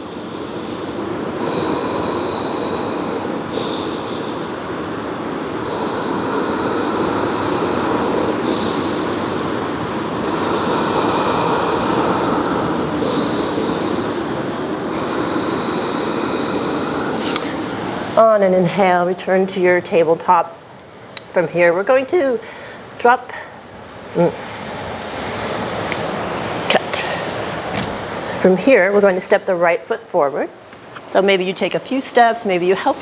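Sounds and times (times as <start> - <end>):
waves breaking: 0.0 - 19.0, 23.9 - 28.8
high surf hiss: 0.0 - 30.0.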